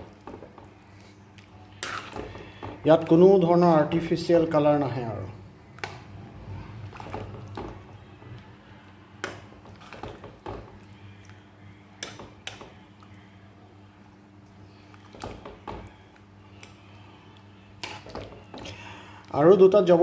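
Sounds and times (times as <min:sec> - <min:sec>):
steady low hum: 0:03.8 - 0:19.3.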